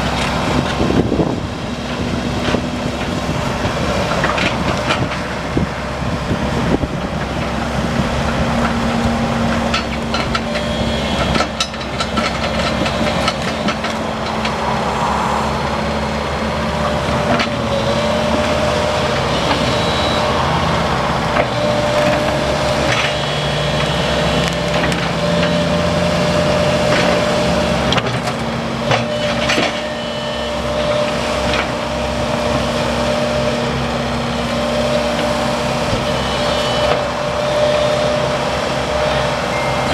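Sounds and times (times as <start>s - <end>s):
excavator running with whine: 0.0s - 39.9s
sharp clanks and knocks: 9.5s - 14.6s.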